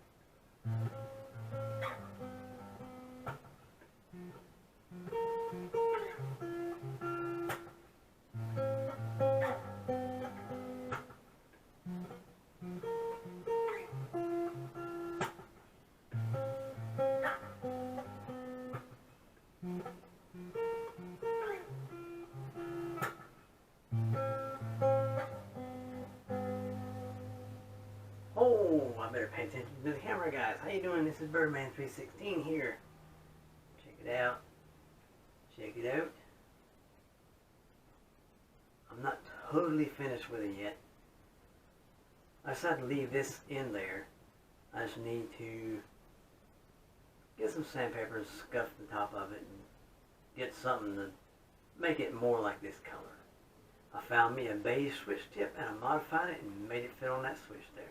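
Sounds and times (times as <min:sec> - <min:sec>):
guitar picking melody: 0:00.6 - 0:33.6.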